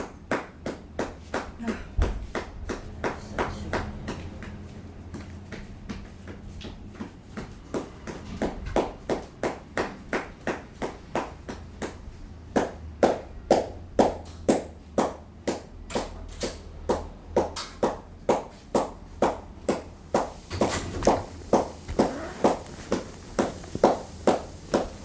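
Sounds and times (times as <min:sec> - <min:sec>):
footsteps walking: 0:19.8 - 0:25.0.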